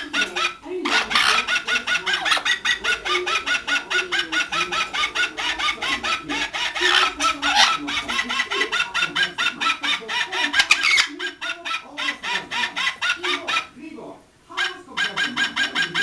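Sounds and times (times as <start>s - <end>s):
parrot clucking calls: 0.0s - 13.8s, 14.5s - 16.0s.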